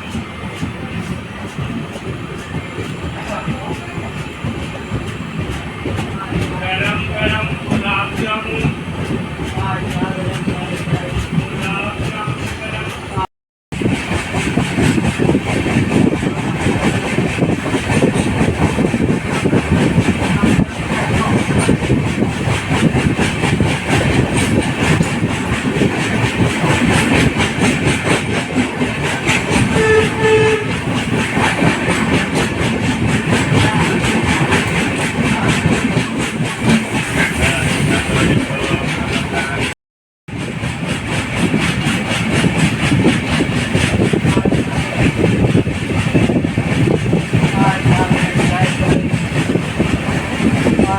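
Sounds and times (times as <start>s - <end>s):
train wheels rumbling on rails: 0.0s - 50.9s.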